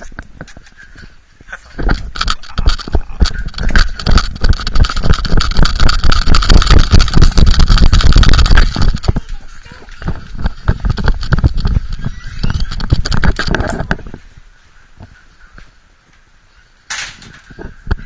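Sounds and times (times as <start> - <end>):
camera knocking and rubbing: 1.8 - 14.2.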